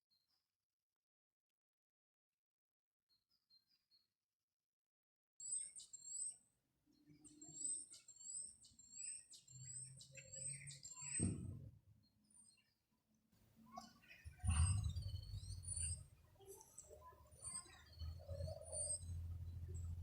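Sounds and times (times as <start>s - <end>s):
songbird singing: 7.0s - 12.8s, 13.7s - 20.0s
low thump: 11.2s - 11.7s.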